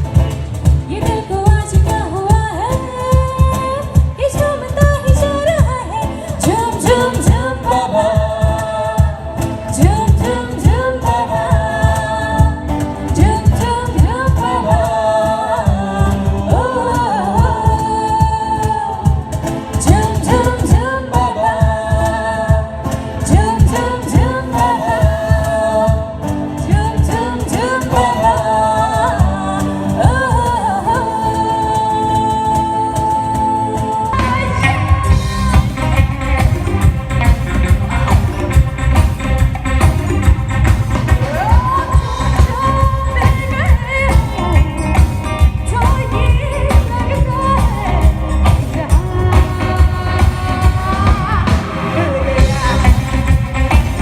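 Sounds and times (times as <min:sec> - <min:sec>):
steady beat: 0:34.2 - 0:54.0
person singing a melody: 0:41.1 - 0:54.0.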